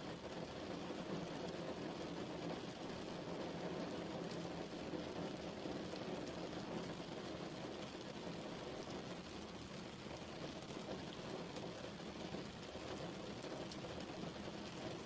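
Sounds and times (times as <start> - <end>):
steady rain patter: 0.0 - 15.0.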